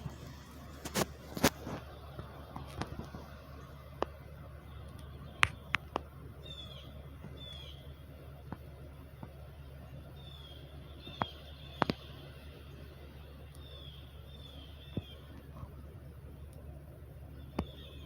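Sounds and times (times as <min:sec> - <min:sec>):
steady low hum: 0:00.0 - 0:18.0
small bird chirping: 0:06.4 - 0:07.9, 0:10.2 - 0:12.2, 0:13.5 - 0:15.6, 0:17.3 - 0:18.0.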